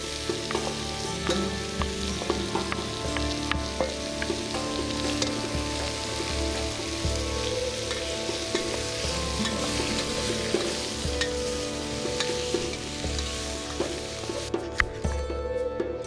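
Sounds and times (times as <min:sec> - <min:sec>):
food sizzling in a pot: 0:00.0 - 0:14.8
background music with held notes: 0:00.0 - 0:16.0.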